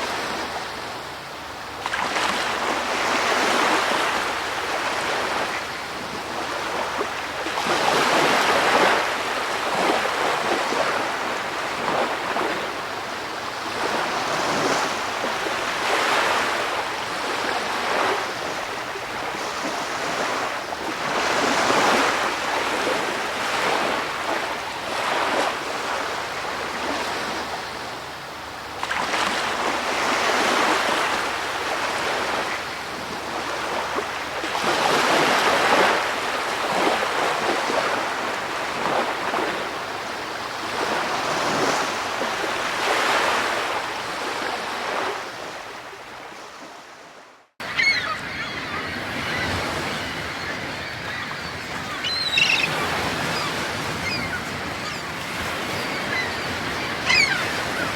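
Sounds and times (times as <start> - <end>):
ocean waves washing: 0.0 - 57.9
bird calls: 47.6 - 57.9.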